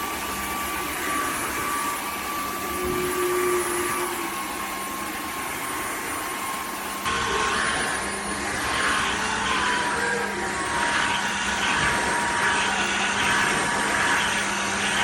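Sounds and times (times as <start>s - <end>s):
vacuum mop running: 0.0s - 15.0s.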